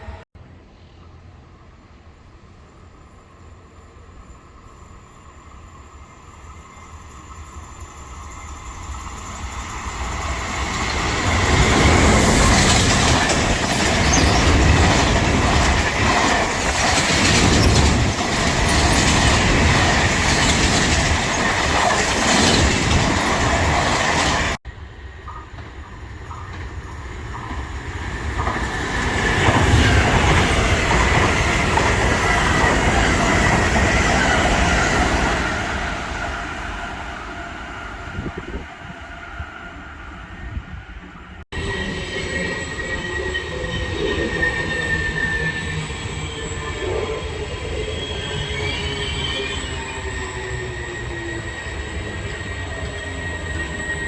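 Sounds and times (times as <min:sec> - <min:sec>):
train approaching: 0:00.0 - 0:54.0
train wheels clattering: 0:09.1 - 0:24.6.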